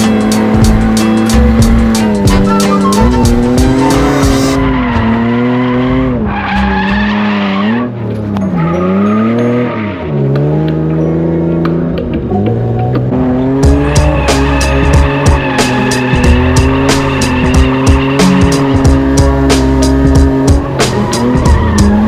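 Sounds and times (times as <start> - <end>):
car engine revving: 0.0 - 22.0
tyres squealing: 0.3 - 4.9, 13.7 - 19.0.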